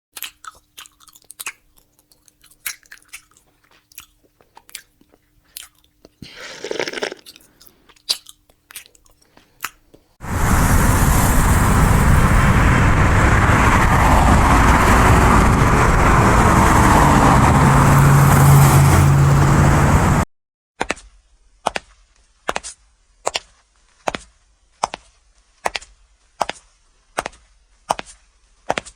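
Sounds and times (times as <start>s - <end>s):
crunchy chewing: 0.2s - 10.2s
loud rushing noise with hum: 10.2s - 20.2s.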